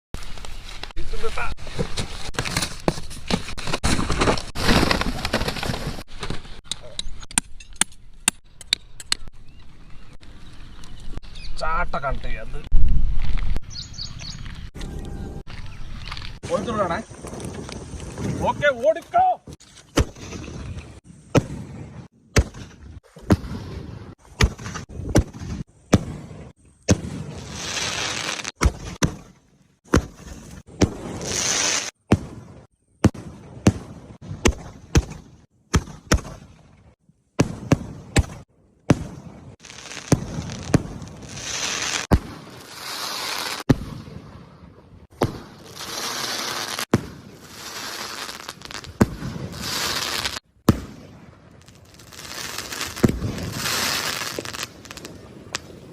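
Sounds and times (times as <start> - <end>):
firecrackers hissing and crackling: 27.1 - 28.6, 31.2 - 32.0, 39.6 - 43.7, 45.2 - 50.4, 51.6 - 55.8.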